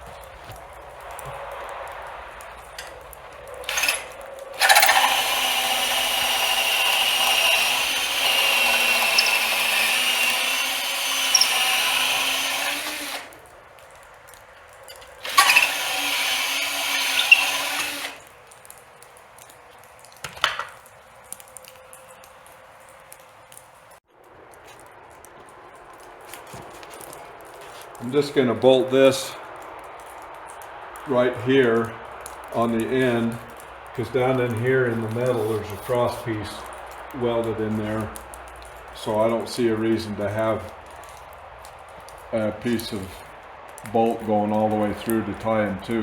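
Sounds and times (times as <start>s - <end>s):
cordless drill drilling: 3.6s - 13.4s, 15.2s - 18.3s.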